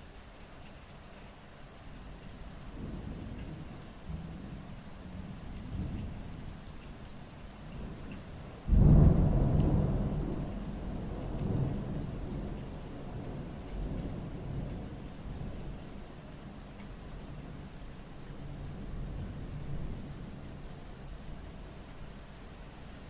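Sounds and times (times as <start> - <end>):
rain falling: 0.0 - 23.0
thunder clap and rumble: 7.8 - 15.8.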